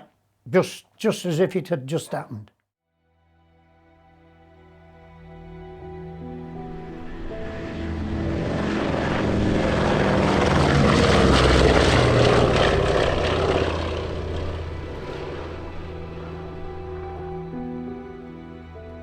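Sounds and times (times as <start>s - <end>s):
propeller aircraft flying over: 5.8s - 19.0s.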